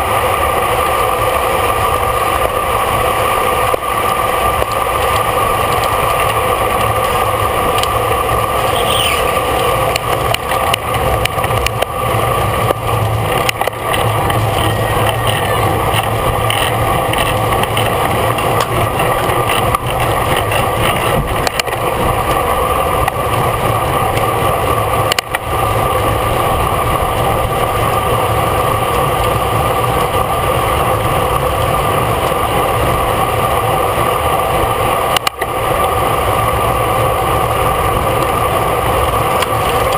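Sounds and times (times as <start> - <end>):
bicycle riding rush and drone: 0.0 - 39.9.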